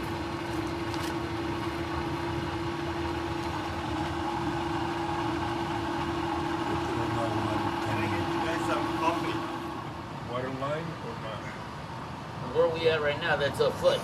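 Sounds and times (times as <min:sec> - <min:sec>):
water pump motor humming: 0:00.0 - 0:10.0.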